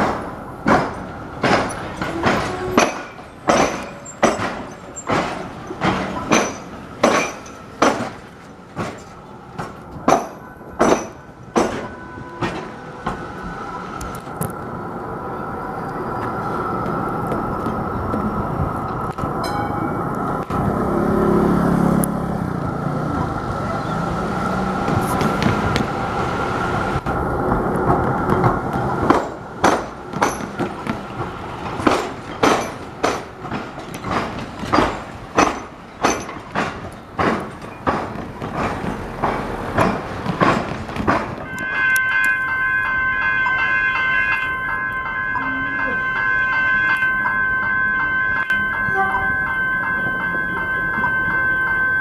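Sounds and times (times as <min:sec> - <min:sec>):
train wheels clattering over crossing: 0:00.0 - 0:14.6, 0:16.1 - 0:51.6
train running noise: 0:00.0 - 0:52.0
high ringing tone: 0:10.4 - 0:12.5, 0:19.4 - 0:20.2, 0:41.5 - 0:52.0.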